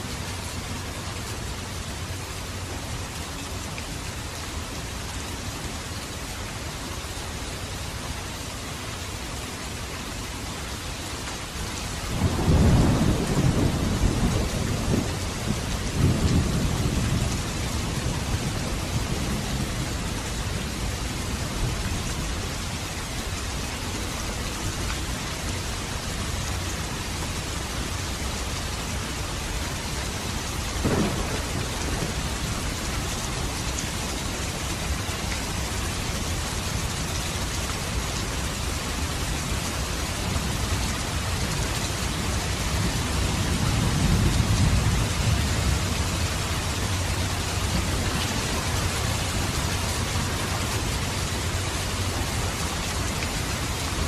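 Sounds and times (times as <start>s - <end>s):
steady rain: 0.0s - 54.0s
thunder rumble: 12.1s - 22.1s, 30.8s - 36.3s, 41.9s - 50.9s.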